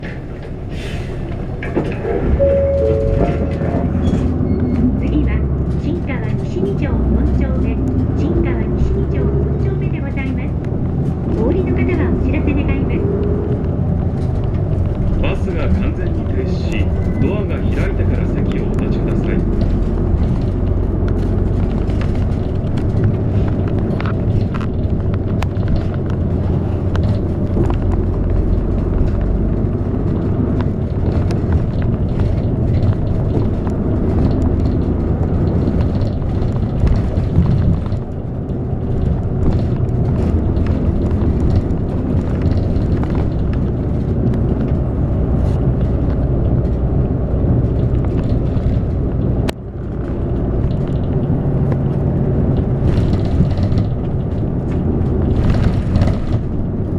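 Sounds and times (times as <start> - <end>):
bus engine and road rumble: 0.0 - 56.9
light clicks and rattles: 13.6 - 56.9.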